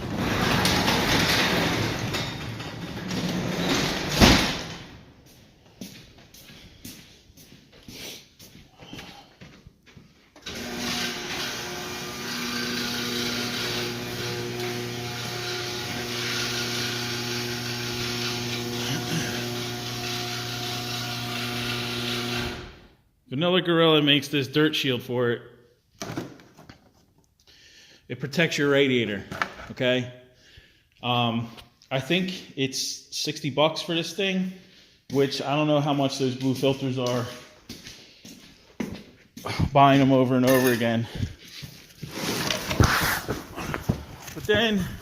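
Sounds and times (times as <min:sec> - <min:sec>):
garage door rolling down: 0:00.0 - 0:05.0, 0:10.4 - 0:22.9
garage door thud shutting: 0:00.0 - 0:05.1.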